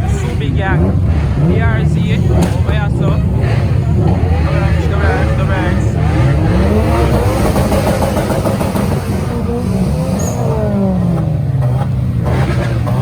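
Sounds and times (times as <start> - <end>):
steady low drone: 0.0 - 12.3
car engines revving: 0.0 - 13.0.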